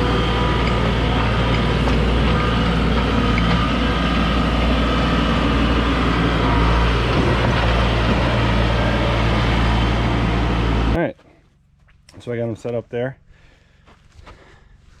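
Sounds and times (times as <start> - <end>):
diesel engine running: 0.0 - 11.8.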